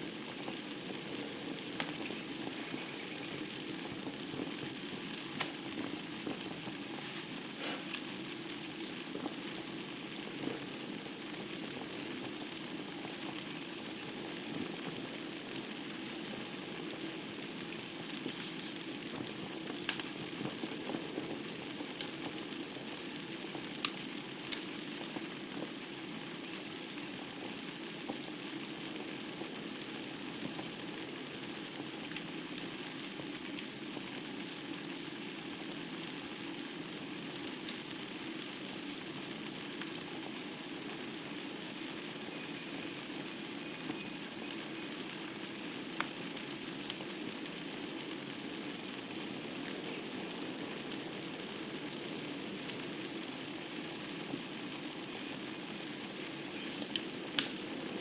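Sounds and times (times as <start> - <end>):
fire popping: 0.0 - 58.0
wood fire hissing and crackling: 0.0 - 58.0.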